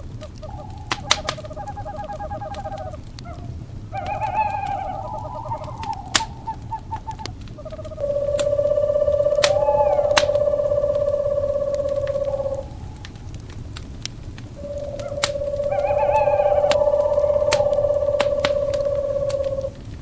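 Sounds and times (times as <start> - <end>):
crackling fire: 0.0 - 20.0
fire popping: 0.0 - 20.0
owls trilling calls: 0.1 - 13.4, 14.5 - 19.9
long steady tone: 8.0 - 13.4, 14.6 - 20.0.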